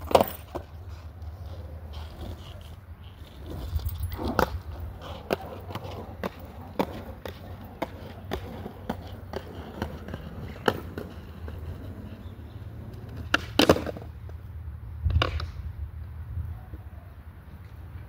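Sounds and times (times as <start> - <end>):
skateboard wheels clacking over joints: 0.0 - 14.5
skateboard wheels rolling on pavement: 0.0 - 18.0.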